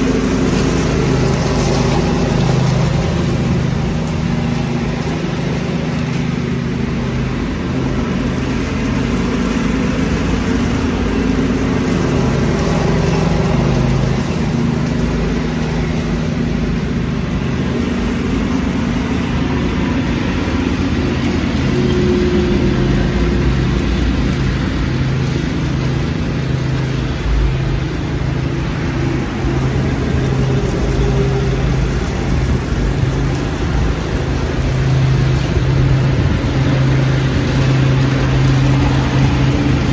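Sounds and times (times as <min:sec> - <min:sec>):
leaf vacuum engine running: 0:00.0 - 0:39.9.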